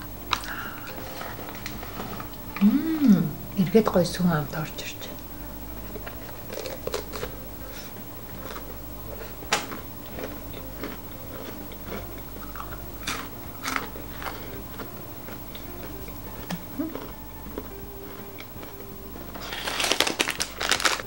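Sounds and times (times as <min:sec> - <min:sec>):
crunching wafer cone: 0:05.8 - 0:21.0.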